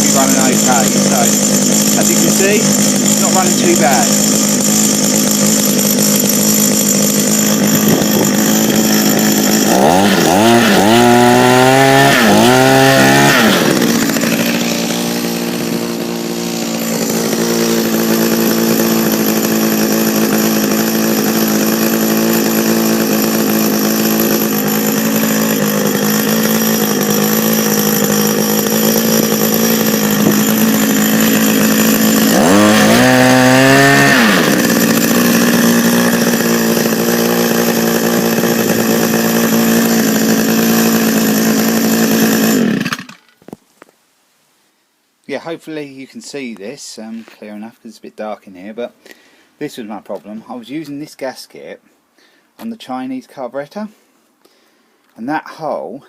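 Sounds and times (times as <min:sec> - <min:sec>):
hedge trimmer engine revving: 0:00.0 - 0:43.4.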